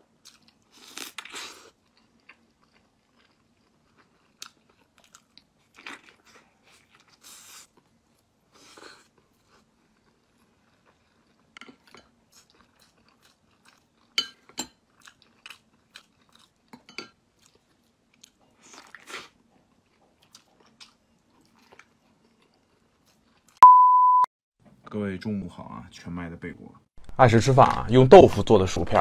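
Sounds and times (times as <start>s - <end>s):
chewing and biting mouth sounds: 0.2s - 23.6s
loud steady beep tone: 23.6s - 24.3s.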